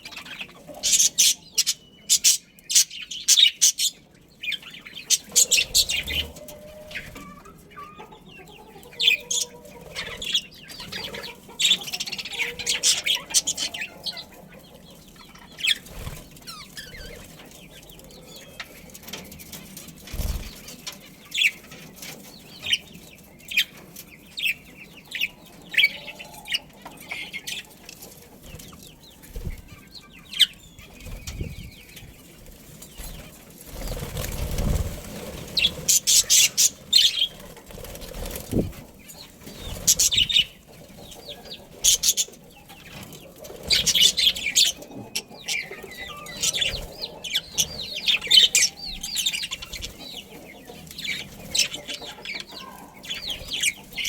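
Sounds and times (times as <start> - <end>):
budgerigars chirping: 0.0 - 19.0, 32.8 - 54.0
wings flapping: 19.9 - 20.8, 32.4 - 40.5.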